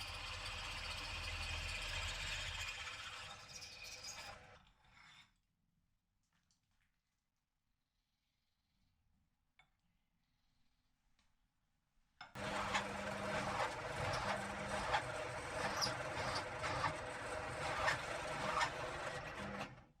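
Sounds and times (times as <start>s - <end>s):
power tool working steel: 0.0s - 4.5s, 12.4s - 19.8s.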